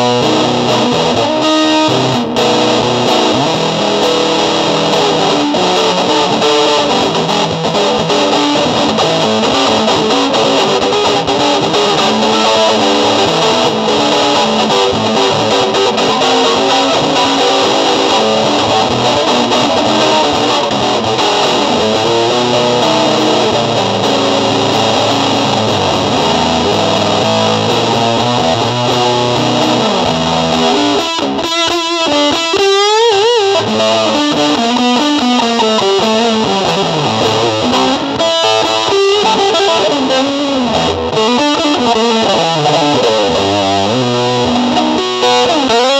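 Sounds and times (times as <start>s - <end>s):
distorted electric guitar: 0.0s - 45.9s.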